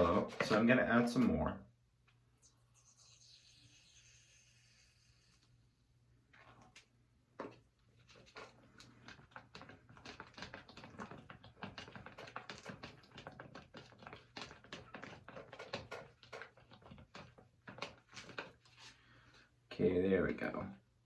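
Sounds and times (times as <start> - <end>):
stirrer clicking against container: 8.1 - 18.7.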